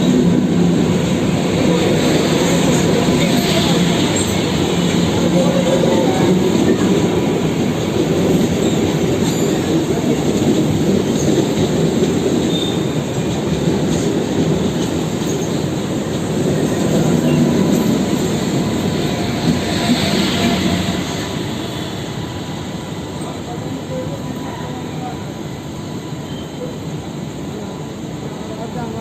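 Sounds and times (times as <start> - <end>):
train wheels rumbling on rails: 0.0 - 29.0
faint wheel squeal: 26.1 - 26.8.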